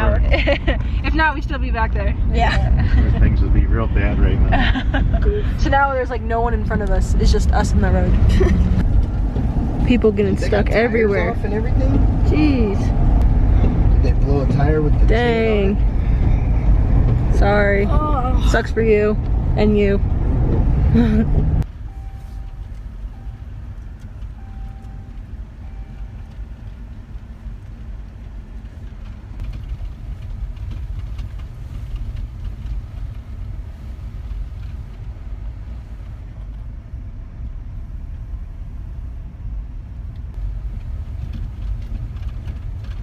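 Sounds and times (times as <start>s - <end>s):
car cabin road rumble: 0.0s - 43.0s
short beeps: 21.8s - 23.7s, 24.3s - 26.4s.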